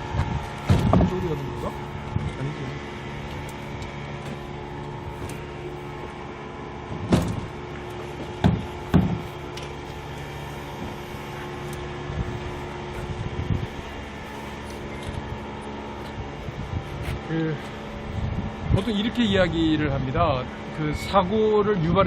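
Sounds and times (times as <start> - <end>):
steady mechanical hum: 0.0 - 22.0
loud knocks: 8.4 - 9.2.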